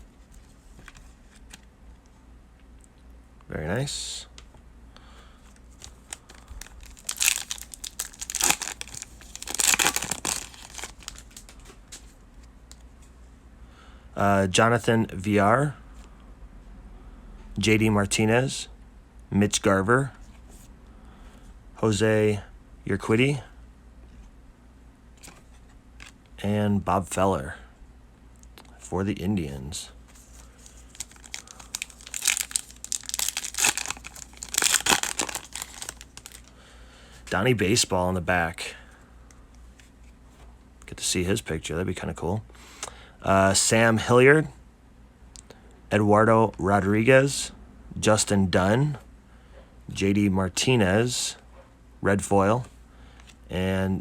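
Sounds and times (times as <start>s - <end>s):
cards rustling: 5.5s - 12.2s, 30.1s - 36.5s
foil wrapper tearing and crinkling: 5.8s - 11.5s, 30.6s - 36.5s.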